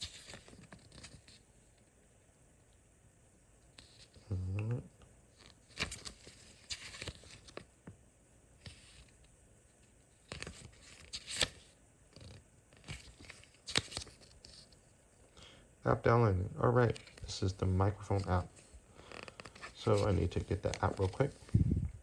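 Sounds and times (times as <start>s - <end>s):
packaging rustling and crinkling: 18.1s - 21.6s.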